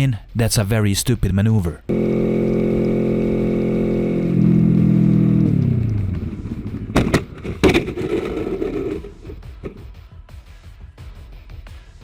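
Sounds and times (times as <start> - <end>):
motorcycle engine running: 1.9 - 9.8
sharp knocks and clatter: 6.6 - 9.8.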